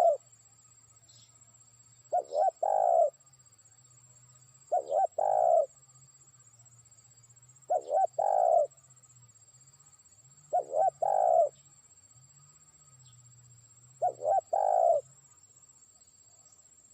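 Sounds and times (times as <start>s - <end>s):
dove cooing: 0.0s - 0.2s, 2.1s - 3.1s, 4.7s - 5.7s, 7.7s - 8.7s, 10.5s - 11.6s, 14.0s - 15.0s.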